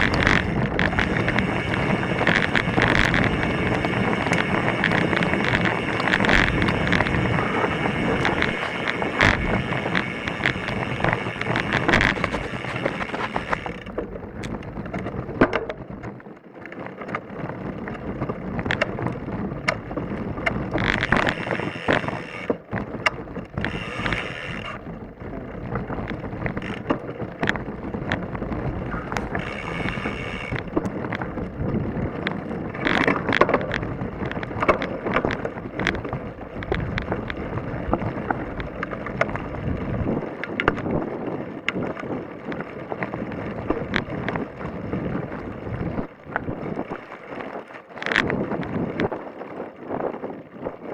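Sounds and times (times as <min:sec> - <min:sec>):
high buzzing: 0:00.0 - 0:13.8, 0:29.1 - 0:30.6
tyres crunching over rock: 0:00.0 - 0:14.0, 0:18.0 - 0:41.0
wind buffeting microphone: 0:00.0 - 0:16.2, 0:17.2 - 0:50.9
bike rattling: 0:00.0 - 0:50.9.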